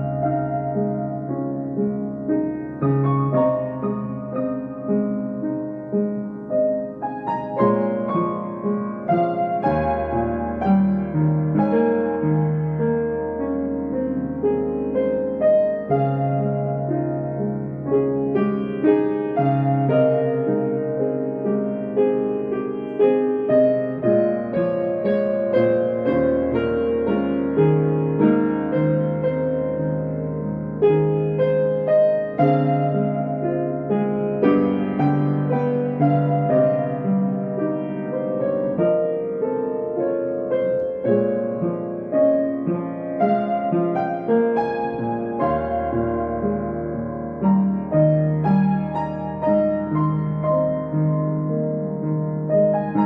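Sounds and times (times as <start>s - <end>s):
solo piano piece: 0.0s - 53.0s.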